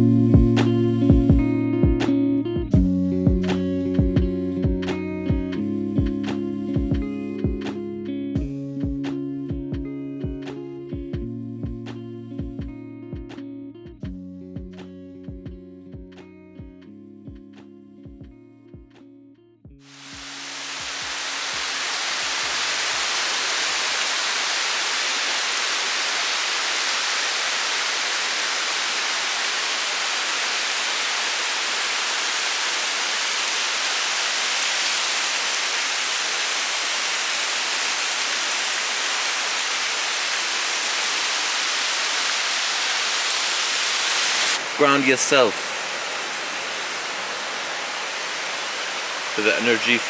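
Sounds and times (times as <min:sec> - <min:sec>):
steady rushing noise: 0:19.9 - 0:50.0.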